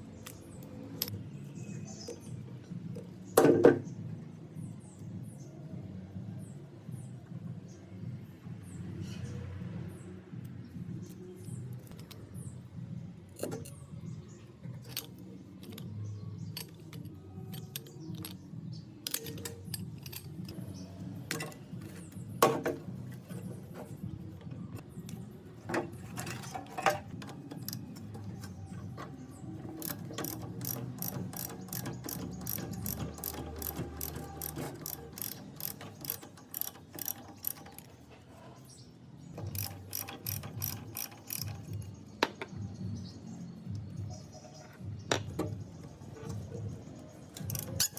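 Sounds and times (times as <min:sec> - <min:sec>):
hand tools clinking on metal: 0:19.0 - 0:20.7, 0:29.7 - 0:38.0, 0:39.4 - 0:41.9, 0:46.1 - 0:47.9
quick regular clicks: 0:29.8 - 0:38.0, 0:39.4 - 0:41.9, 0:47.3 - 0:47.9.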